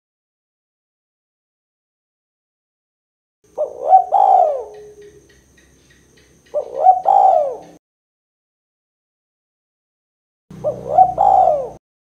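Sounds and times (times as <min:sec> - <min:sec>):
dove cooing: 0:03.5 - 0:07.8, 0:10.5 - 0:11.8.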